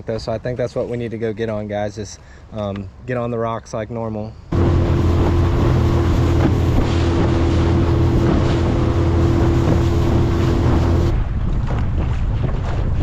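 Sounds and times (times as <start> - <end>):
steady hum: 4.5 - 11.1
wind buffeting microphone: 4.5 - 13.0.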